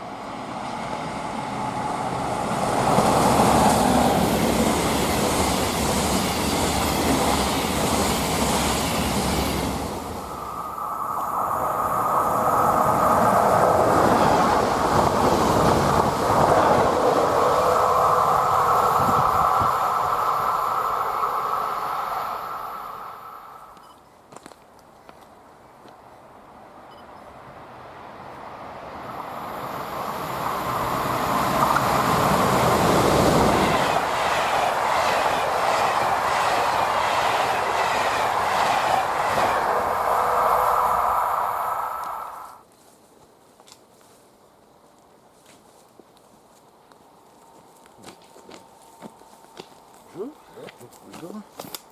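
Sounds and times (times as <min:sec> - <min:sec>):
train wheels rolling on rail: 0:00.0 - 0:24.6, 0:28.2 - 0:42.7.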